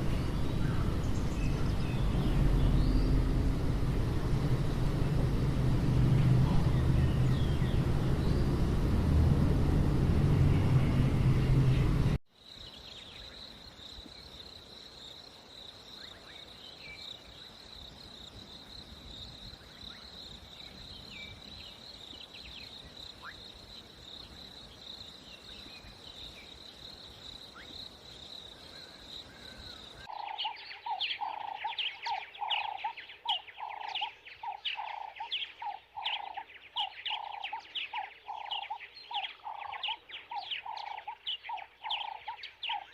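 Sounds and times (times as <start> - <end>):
bird calling: 0.0 - 9.2, 28.6 - 42.9
loud rushing noise: 0.0 - 12.2.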